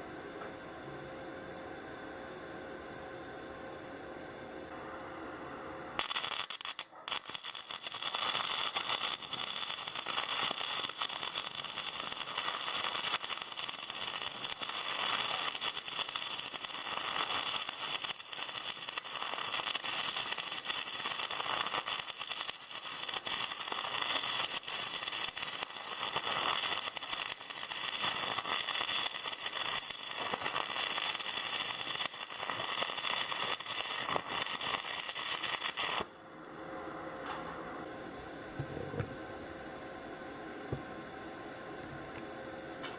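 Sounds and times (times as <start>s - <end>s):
arc welding crackle: 4.7s - 36.2s.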